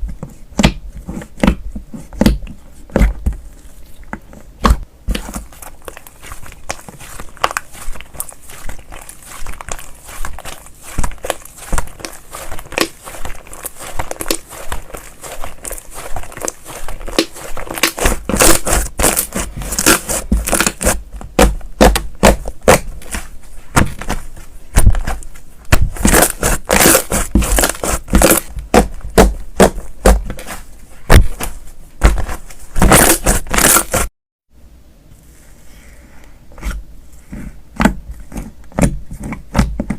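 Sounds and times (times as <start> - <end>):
slime squished by hand: 4.6 - 34.1.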